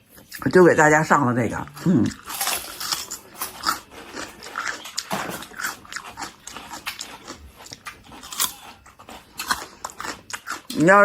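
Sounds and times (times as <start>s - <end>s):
person crunching raw radish: 1.7s - 10.8s.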